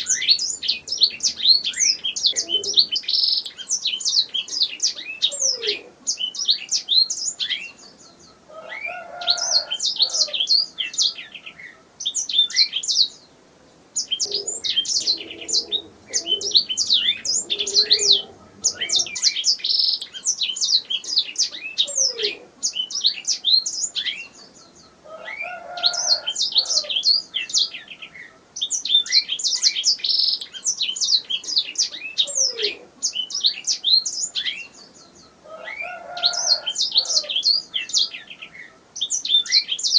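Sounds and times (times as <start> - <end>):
canary chirping and trilling: 14.0 - 24.2.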